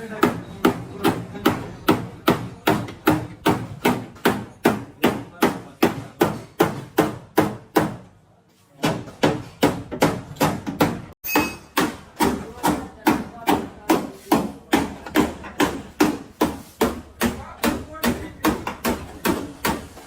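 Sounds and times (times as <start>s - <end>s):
hammer striking sheet metal: 8.8s - 20.0s.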